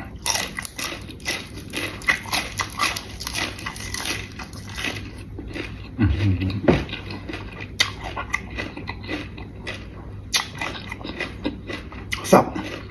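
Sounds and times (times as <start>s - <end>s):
person chewing with crunches: 0.0s - 12.9s.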